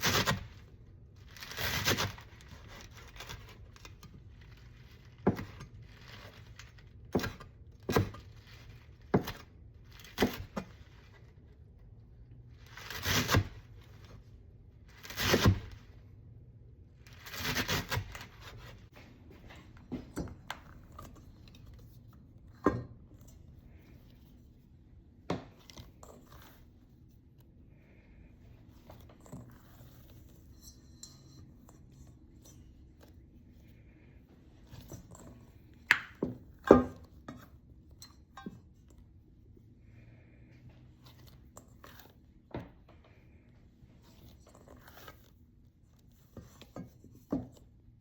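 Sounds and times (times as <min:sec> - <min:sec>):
scraping or rustling: 0:00.0 - 0:11.6.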